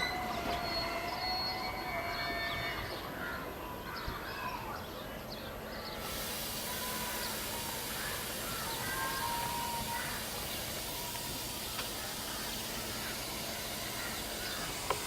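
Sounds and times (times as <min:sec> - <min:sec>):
wheel squeals: 0:00.0 - 0:02.9
train rumbling: 0:00.0 - 0:03.2, 0:06.0 - 0:15.0
steady hiss: 0:05.9 - 0:15.0.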